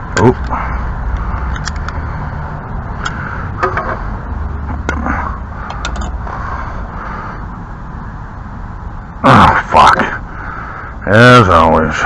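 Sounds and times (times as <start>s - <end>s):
steady low rumble: 0.0s - 11.1s
hand tools clicking on metal: 5.7s - 6.2s.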